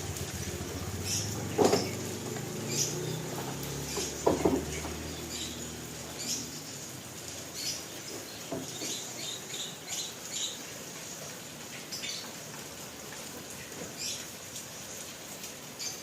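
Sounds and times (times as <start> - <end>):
hail hitting: 0.0 - 6.4
heavy rain hissing: 0.0 - 16.0.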